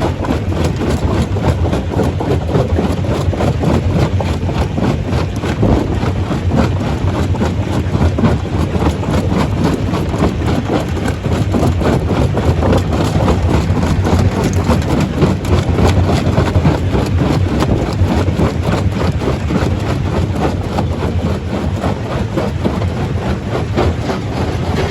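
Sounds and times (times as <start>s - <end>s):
rocks knocking and cracking: 0.1s - 24.9s
stone crusher machine drone: 11.3s - 18.6s, 19.2s - 24.9s.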